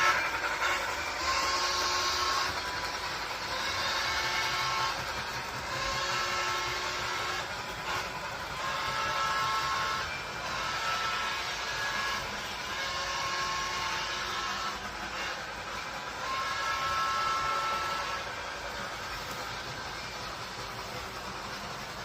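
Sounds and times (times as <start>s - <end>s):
train rumbling with motor whine: 0.0s - 22.0s.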